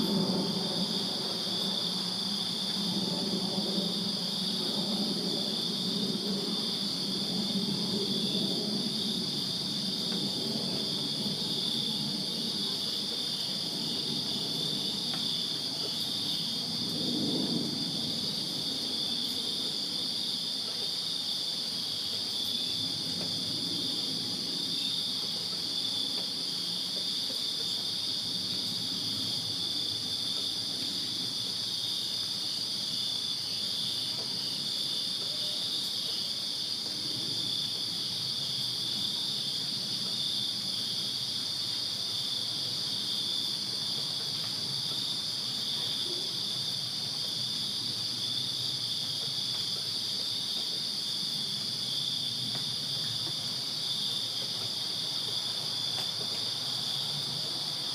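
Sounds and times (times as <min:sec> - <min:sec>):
crickets chirping: 0:00.0 - 0:57.9.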